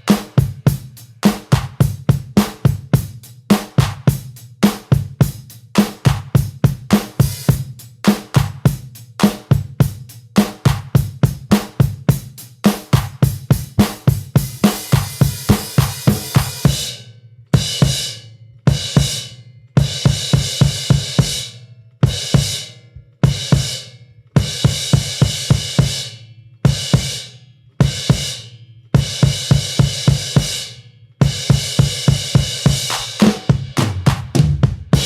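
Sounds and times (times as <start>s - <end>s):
drum hits: 0.0s - 2.9s, 12.7s - 16.9s, 31.3s - 35.0s
cymbal crashes: 13.9s - 17.0s, 31.6s - 35.0s.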